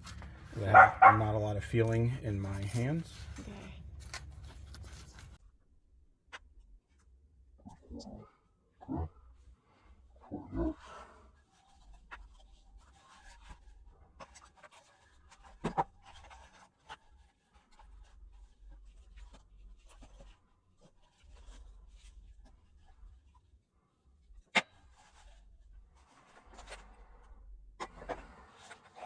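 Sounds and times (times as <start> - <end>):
hands handling small parts: 0.0 - 5.4.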